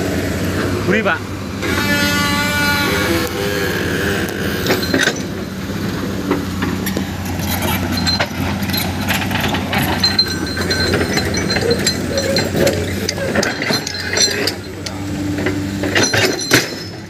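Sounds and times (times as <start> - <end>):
diesel engine running: 0.0 - 17.0
short high squeak: 1.6 - 3.7
metallic clinks and knocks: 6.8 - 17.0.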